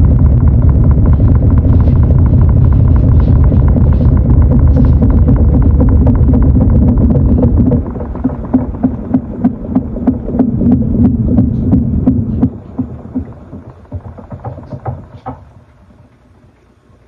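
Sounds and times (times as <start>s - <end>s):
washing machine running: 0.0s - 17.0s.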